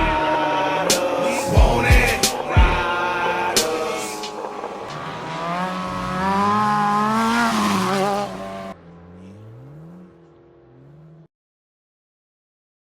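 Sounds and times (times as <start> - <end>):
motorcycle engine revving: 0.0 - 11.3.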